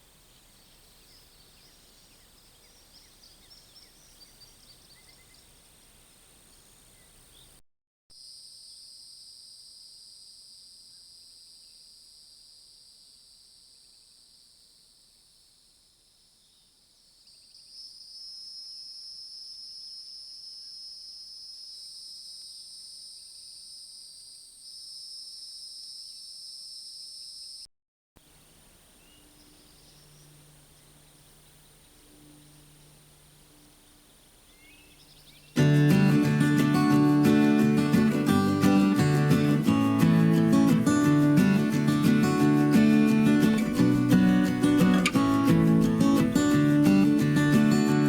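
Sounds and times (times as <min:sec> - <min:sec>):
insect chorus buzzing: 0:00.0 - 0:07.5, 0:08.2 - 0:27.6, 0:28.3 - 0:48.0.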